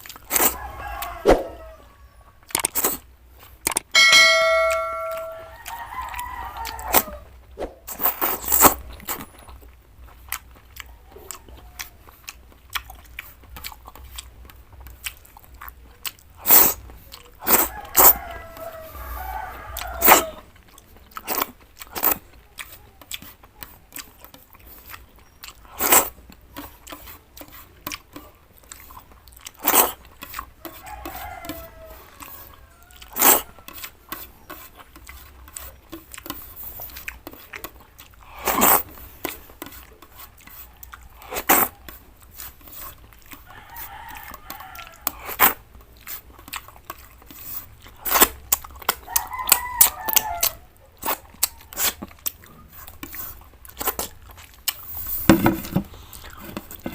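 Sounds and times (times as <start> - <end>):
chewing and crunching vegetables: 0.0 - 4.0, 5.4 - 56.9
rooster crowing: 0.4 - 2.4, 4.0 - 7.3, 17.5 - 20.5, 30.7 - 33.8, 43.5 - 45.2, 49.0 - 50.7.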